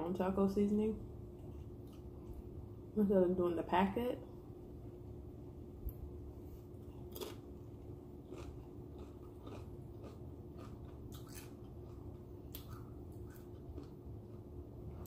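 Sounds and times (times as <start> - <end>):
tortilla chip crunching: 6.8 - 7.6, 8.2 - 14.5.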